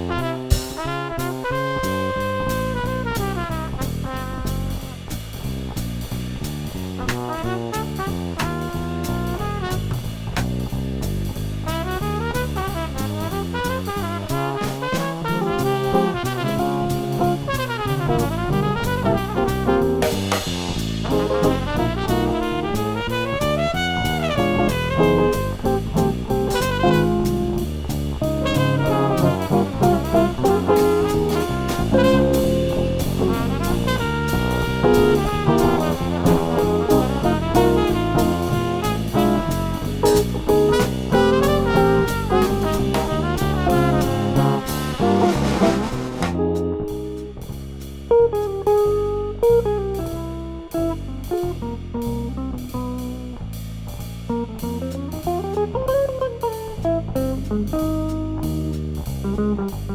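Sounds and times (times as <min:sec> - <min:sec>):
trumpet melody: 0:00.0 - 0:05.1, 0:07.0 - 0:10.4, 0:11.6 - 0:47.0
bass: 0:00.0 - 0:59.9
drum kit with cymbals: 0:00.0 - 0:59.9
guitar: 0:28.2 - 0:31.0, 0:46.3 - 0:47.3, 0:54.3 - 0:58.5.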